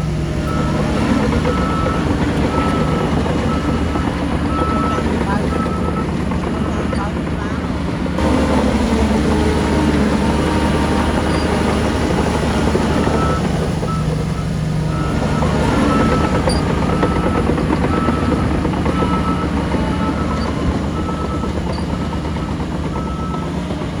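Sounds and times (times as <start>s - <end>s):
heavy diesel machinery running: 0.0s - 24.0s
backup alarm beeping: 0.4s - 7.2s, 11.2s - 23.5s.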